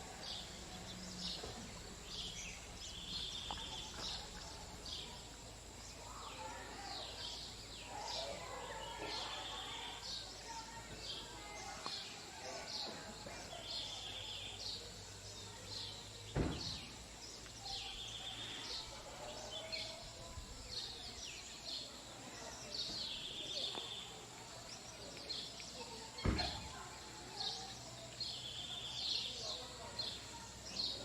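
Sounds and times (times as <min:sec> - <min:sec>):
birds calling: 0:00.0 - 0:10.7.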